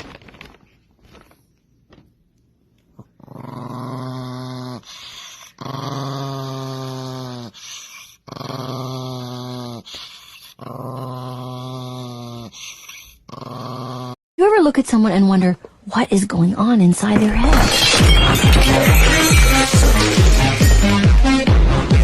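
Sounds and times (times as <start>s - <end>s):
dog growling: 3.0s - 14.2s.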